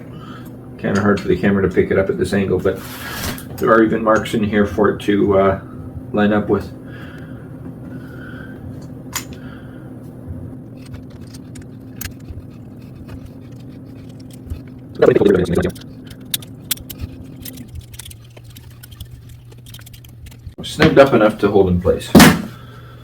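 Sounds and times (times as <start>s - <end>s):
steady low hum: 0.0s - 23.0s
hex key clicking and scraping: 10.8s - 20.6s.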